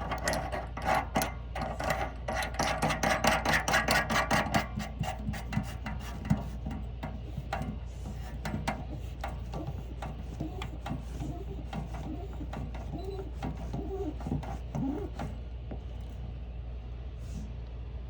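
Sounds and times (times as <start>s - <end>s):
steady low hum: 0.0s - 18.0s
short squeaks: 8.1s - 16.1s.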